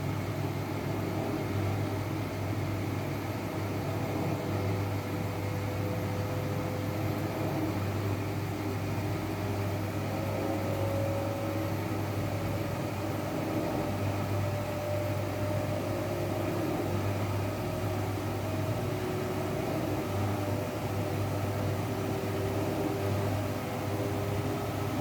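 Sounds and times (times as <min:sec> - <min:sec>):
washing machine running: 0:00.0 - 0:25.0.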